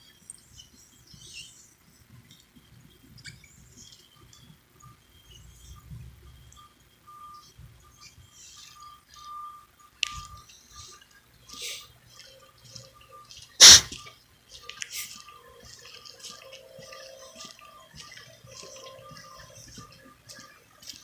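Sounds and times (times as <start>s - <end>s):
marker scratching on a surface: 13.6s - 13.9s.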